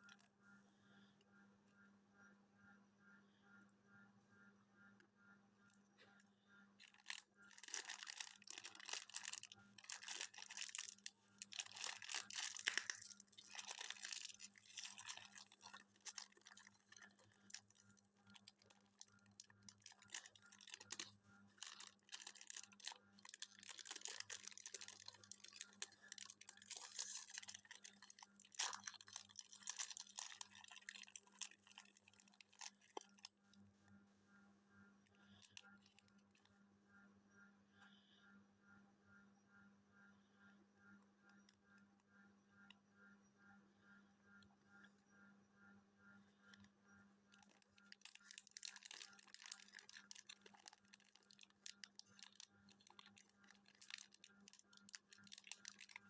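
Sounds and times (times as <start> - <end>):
rustling and crackling: 6.8 - 33.4.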